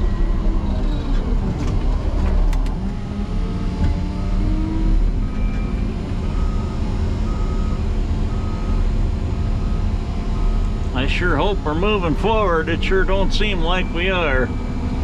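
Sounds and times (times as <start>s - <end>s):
diesel engine running hard: 0.0s - 15.0s
faint backup alarm beeping: 9.6s - 14.9s.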